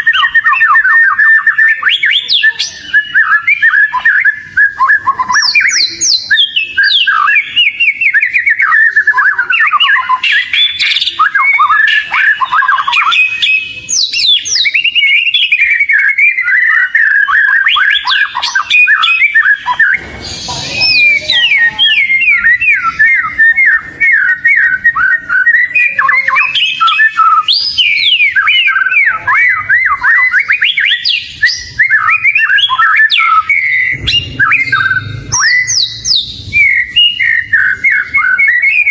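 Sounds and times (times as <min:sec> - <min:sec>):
bird singing chirps and trills: 0:00.0 - 0:38.9
harsh raspy bird note: 0:33.2 - 0:38.0.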